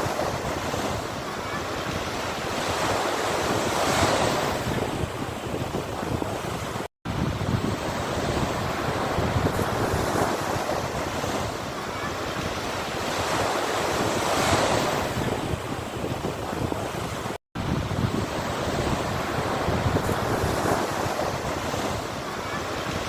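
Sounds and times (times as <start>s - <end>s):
sea waves washing ashore: 0.0s - 23.0s.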